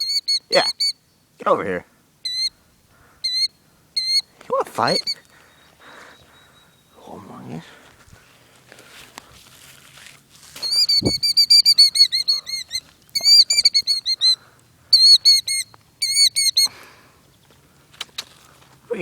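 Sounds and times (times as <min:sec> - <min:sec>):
bird alarm calls: 0:00.0 - 0:01.1, 0:02.2 - 0:07.2, 0:10.6 - 0:16.8.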